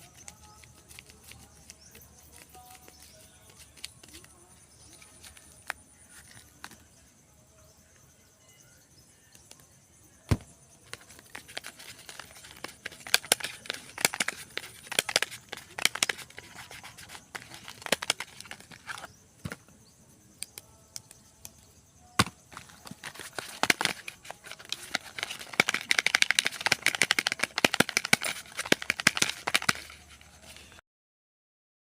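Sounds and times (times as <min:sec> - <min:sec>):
packaging crinkling: 0:10.9 - 0:19.1, 0:22.5 - 0:30.7.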